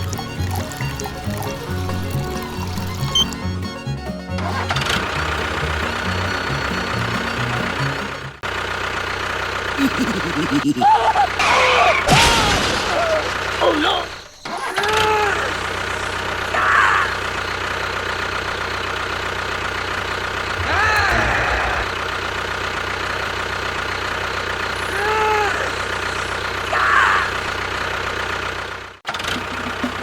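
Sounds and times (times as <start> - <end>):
pitched squeaks: 0.0 - 8.3, 20.5 - 22.0
engine-like drone: 0.0 - 12.0, 13.3 - 30.0.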